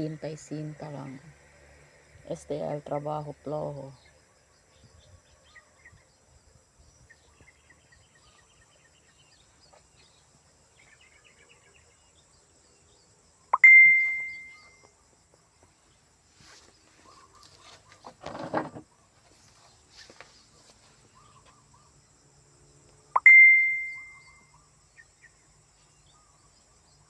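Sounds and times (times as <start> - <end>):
faint bird chirps: 3.5 - 22.2, 23.0 - 27.0
ringing ding: 13.6 - 14.8, 23.2 - 24.3.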